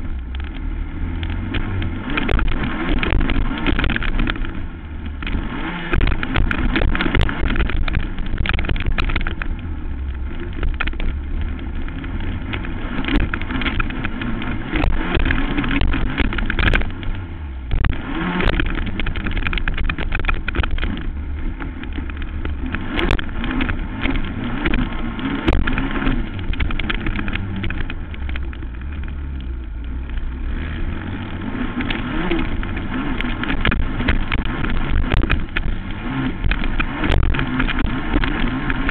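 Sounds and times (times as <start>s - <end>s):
knocks and rattles: 0.0s - 38.9s
quad bike engine running: 0.0s - 38.9s.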